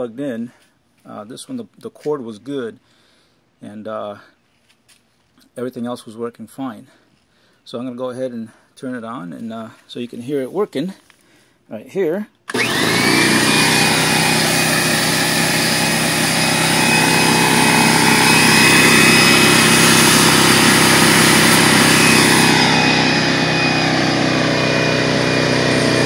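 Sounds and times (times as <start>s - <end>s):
air compressor running: 12.5s - 26.0s.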